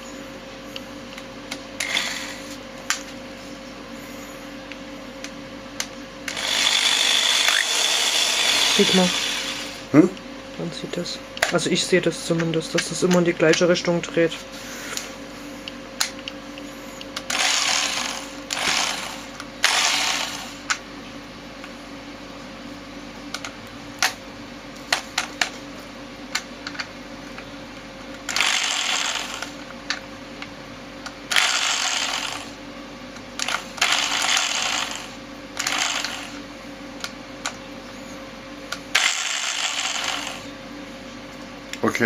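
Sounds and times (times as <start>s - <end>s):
electric drill motor: 1.8s - 2.6s, 6.3s - 10.0s, 16.6s - 20.8s, 28.2s - 29.7s, 31.3s - 32.6s, 33.4s - 37.6s, 38.8s - 40.6s.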